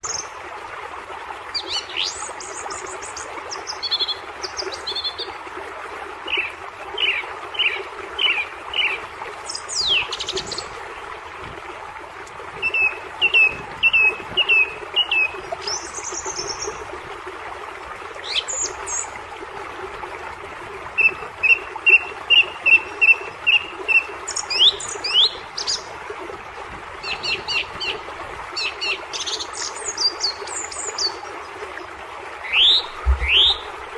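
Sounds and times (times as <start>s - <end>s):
birds singing and calling: 6.3s - 10.7s, 12.6s - 16.8s, 32.4s - 33.8s.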